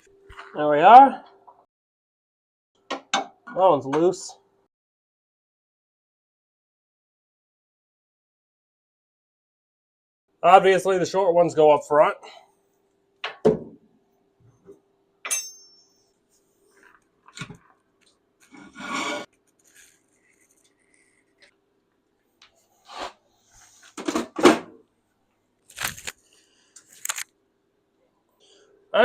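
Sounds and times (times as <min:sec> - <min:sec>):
metal tools clinking: 0:15.3 - 0:16.1.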